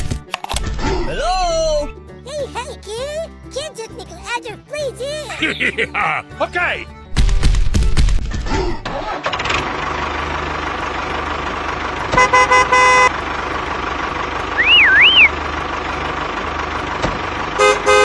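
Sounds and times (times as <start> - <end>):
truck engine running: 6.9 - 18.0
horn honking: 10.1 - 18.0
warbling high whistle: 14.6 - 15.3.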